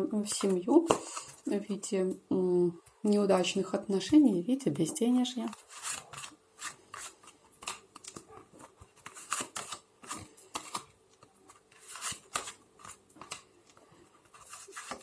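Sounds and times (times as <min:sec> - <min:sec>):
cards being shuffled: 0:05.4 - 0:15.0.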